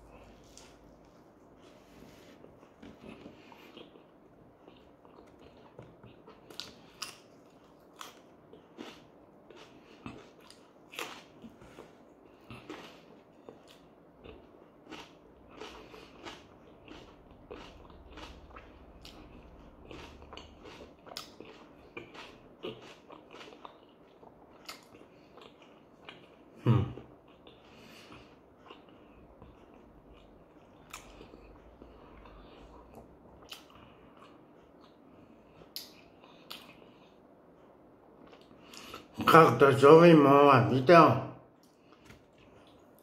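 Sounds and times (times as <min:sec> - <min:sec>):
man chewing food: 0:00.0 - 0:39.3, 0:41.5 - 0:43.0.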